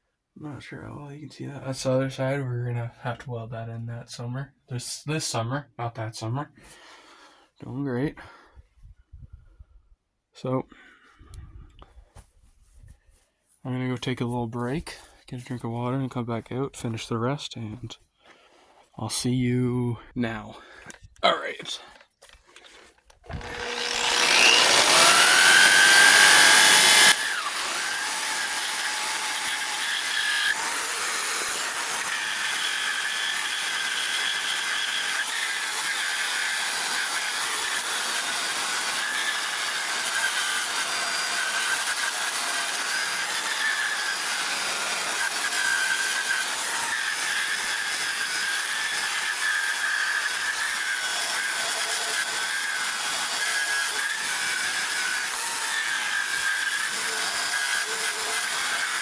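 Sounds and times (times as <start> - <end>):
electric burnishing tool whining: 23.3 - 59.0.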